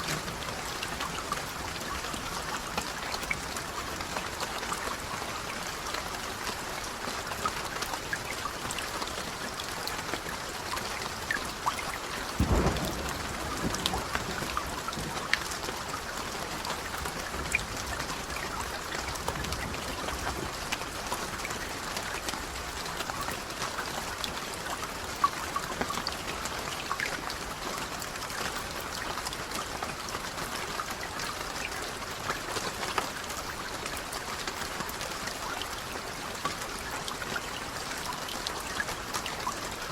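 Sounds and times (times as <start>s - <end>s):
raindrops tapping on a surface: 0.0s - 39.9s
steady rain: 0.0s - 39.9s
distant thunder rumble: 12.4s - 16.7s.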